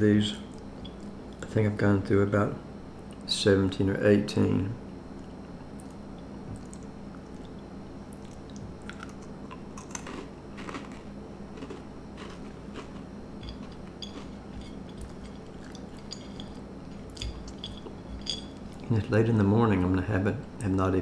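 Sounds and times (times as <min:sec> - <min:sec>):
crackers chewing and crunching: 0:05.1 - 0:19.0.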